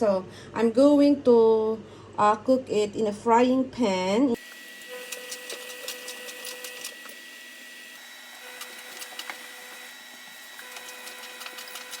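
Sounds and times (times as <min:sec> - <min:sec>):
dough frying crackles and pops: 0:08.3 - 0:12.0.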